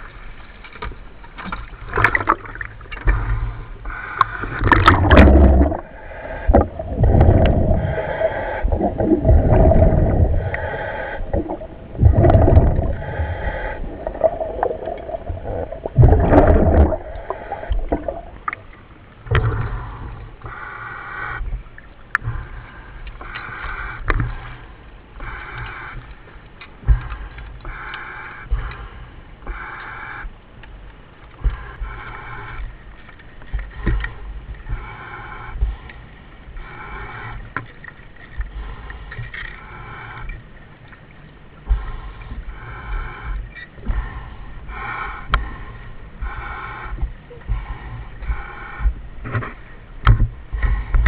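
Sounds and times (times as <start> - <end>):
diver breathing through regulator: 3.0 - 18.7, 19.3 - 30.4, 31.4 - 40.9, 41.6 - 49.8, 50.4 - 51.0
bubbling exhalations: 4.5 - 18.5.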